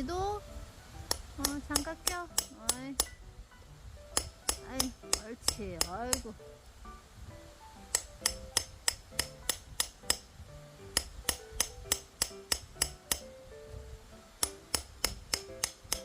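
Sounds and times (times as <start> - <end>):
background music: 0.0 - 16.0
sharp evenly spaced taps: 1.0 - 3.3, 4.0 - 6.4, 7.7 - 13.4, 14.3 - 16.0.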